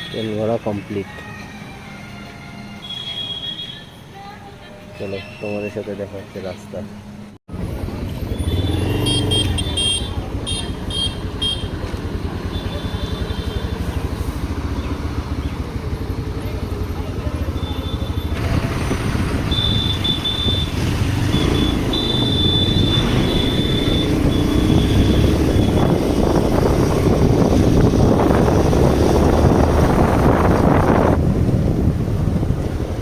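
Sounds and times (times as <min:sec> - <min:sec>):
motorcycle engine: 0:07.5 - 0:33.0
wind rush on microphone: 0:24.2 - 0:33.0.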